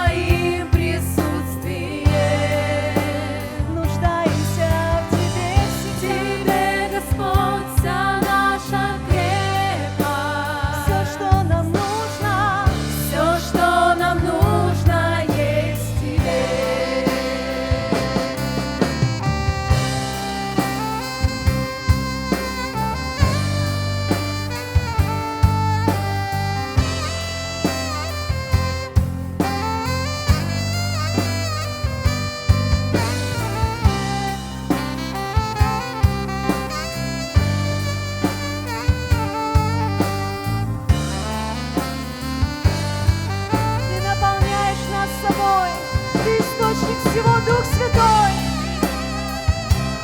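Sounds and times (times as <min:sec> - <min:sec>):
band playing lead melody: 0:00.0 - 0:50.0
drums: 0:00.0 - 0:50.0
steady bass: 0:00.0 - 0:50.0.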